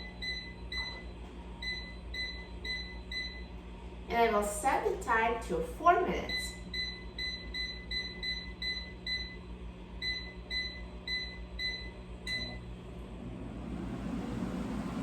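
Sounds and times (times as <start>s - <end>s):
air fryer short high beeps: 0.0s - 3.5s, 6.2s - 12.7s
air fryer fan rushing: 11.6s - 15.0s.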